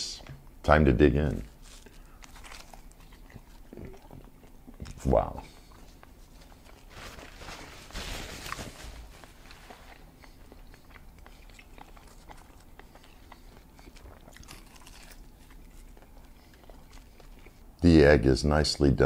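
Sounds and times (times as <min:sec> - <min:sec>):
person chewing: 0:01.5 - 0:06.9, 0:09.1 - 0:17.8
rustling: 0:05.7 - 0:10.5.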